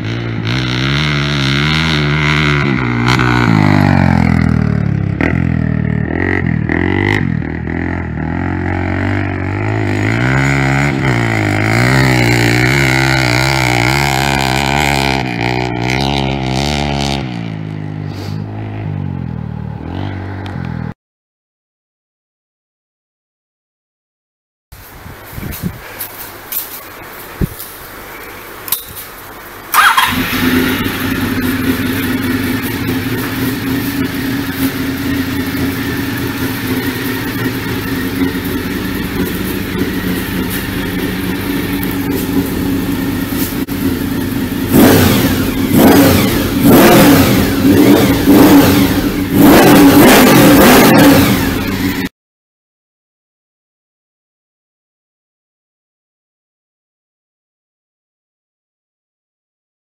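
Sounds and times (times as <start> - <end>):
engine revving: 0.0 - 20.9, 29.7 - 52.1
motorcycle engine starting and idling: 0.0 - 20.9, 25.1 - 52.1.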